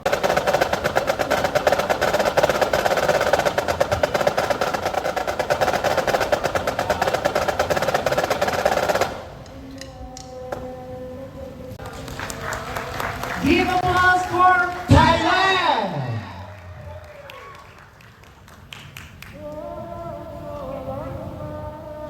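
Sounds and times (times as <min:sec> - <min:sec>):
rapid drum roll: 0:00.0 - 0:09.5, 0:13.0 - 0:17.2
wind band playing held chord: 0:00.0 - 0:18.0.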